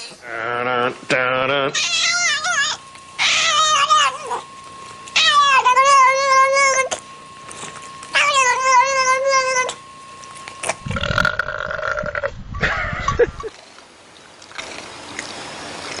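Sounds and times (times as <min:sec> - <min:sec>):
cat yowling: 0:01.7 - 0:04.5, 0:05.2 - 0:07.0, 0:08.2 - 0:09.8
low rumbling noise: 0:10.7 - 0:13.5
rough low animal call: 0:10.7 - 0:13.5.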